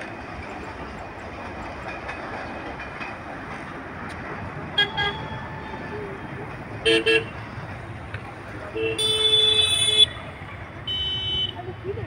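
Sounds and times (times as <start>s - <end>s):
train rumbling along track: 0.0s - 12.0s
vehicle horn toots: 8.8s - 10.2s, 10.9s - 11.6s.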